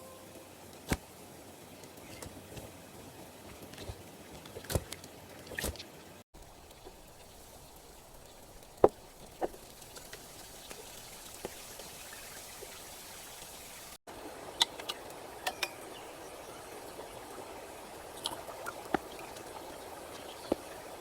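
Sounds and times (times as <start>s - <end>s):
rain hiss: 6.4s - 21.0s.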